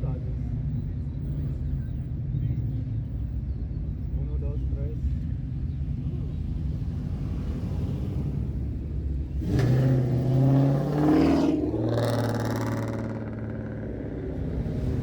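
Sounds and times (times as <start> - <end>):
car engine accelerating: 6.8 - 15.0.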